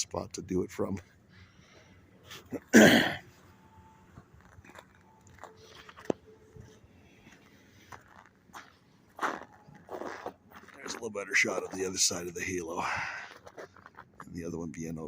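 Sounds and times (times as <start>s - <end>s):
boots crunching on snow: 7.9s - 12.0s.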